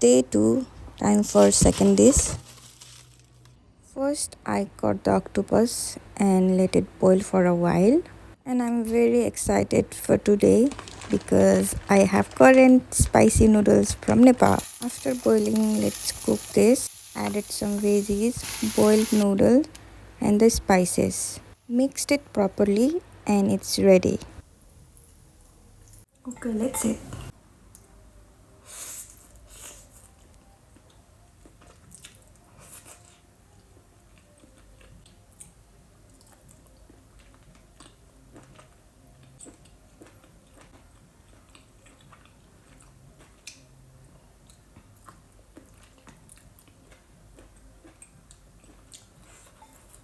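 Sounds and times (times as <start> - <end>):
chewing and biting: 30.8 - 33.2, 34.2 - 43.7, 44.4 - 50.0.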